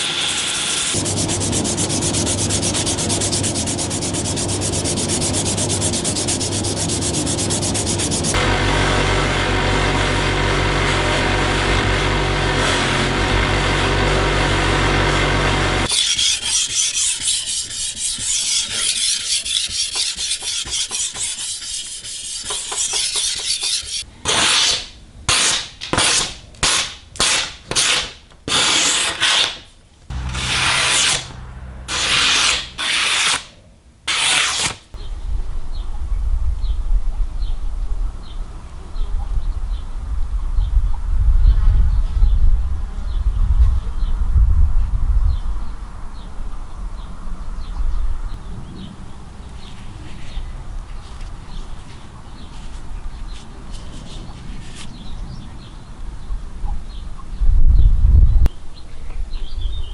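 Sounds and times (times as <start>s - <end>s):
knife blade rasping on abrasive: 0.3s - 8.4s, 15.8s - 24.8s, 27.8s - 33.5s, 34.1s - 34.8s.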